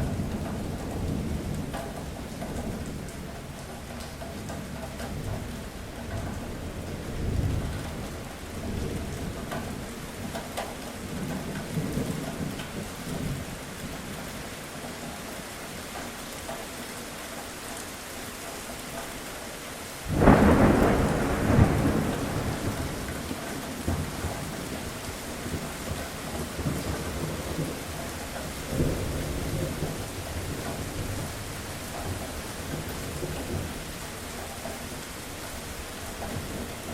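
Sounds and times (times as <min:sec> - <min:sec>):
steady rain falling: 0:00.0 - 0:36.9
thunder rumbling: 0:20.0 - 0:25.7
loud thunderclap: 0:20.1 - 0:24.6.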